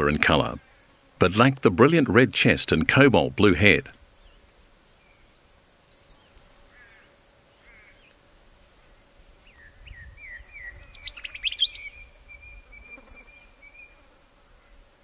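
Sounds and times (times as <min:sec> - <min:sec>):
small bird chirping: 0:09.4 - 0:14.0.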